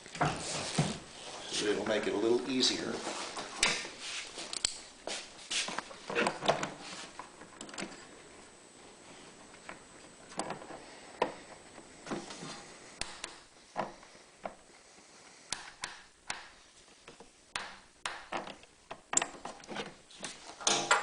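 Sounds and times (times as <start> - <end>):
clicks and taps of parts: 15.5 - 19.9.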